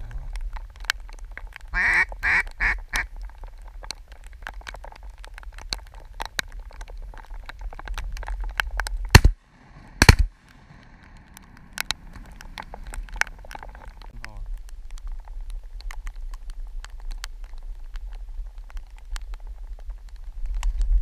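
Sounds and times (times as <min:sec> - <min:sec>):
raindrops ticking on camera: 0:00.0 - 0:21.0
duck quacks: 0:01.8 - 0:03.1.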